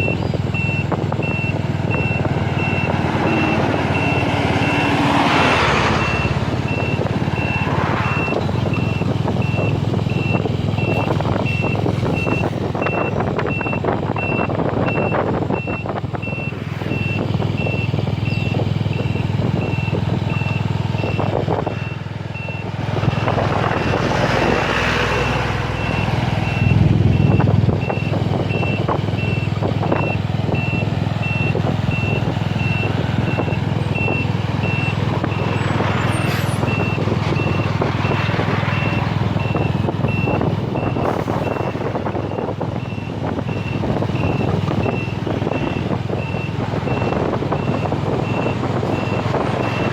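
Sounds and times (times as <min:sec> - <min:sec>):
electronic warning beeper: 0:00.0 - 0:22.7
rushing noise with low rumble: 0:00.0 - 0:49.9.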